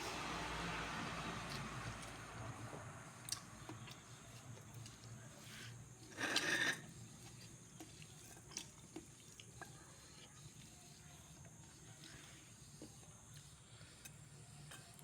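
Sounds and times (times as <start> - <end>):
person chewing food: 3.2 - 5.1, 7.1 - 10.4.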